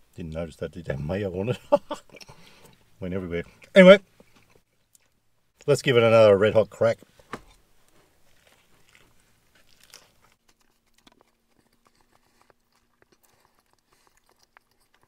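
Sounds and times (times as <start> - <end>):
faint steady hum: 0.0 - 15.0
person biting and chewing burger: 8.2 - 15.0.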